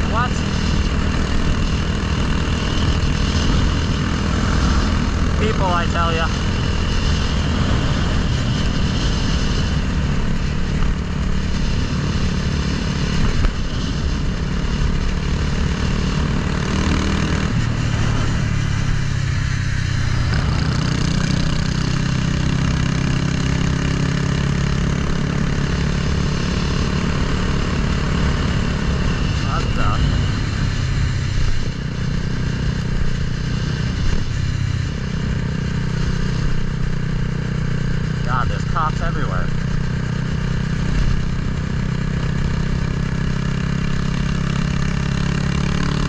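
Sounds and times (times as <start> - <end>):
motorcycle engine running: 0.0 - 46.0
wind and road noise: 0.0 - 46.0.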